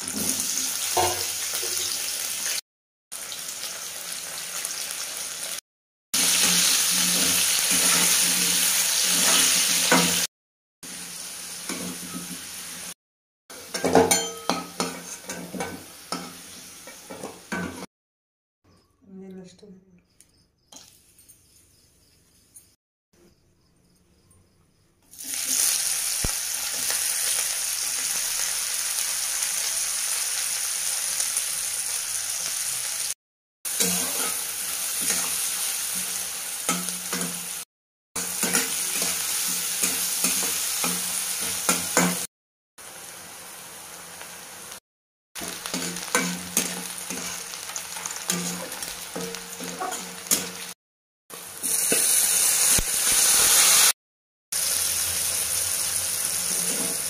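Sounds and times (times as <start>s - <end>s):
food sizzling in hot oil: 0.0s - 5.6s, 6.2s - 17.9s, 25.1s - 44.8s, 45.4s - 57.0s
metal spatula scraping a pan: 6.3s - 10.3s, 33.7s - 36.1s, 38.2s - 42.2s, 45.4s - 50.7s, 56.3s - 57.0s.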